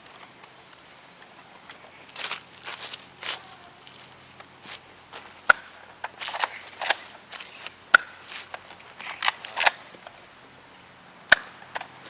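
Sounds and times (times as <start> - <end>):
rustling movement: 0.0 - 10.3
scuffling footsteps: 2.1 - 5.4, 6.0 - 9.1.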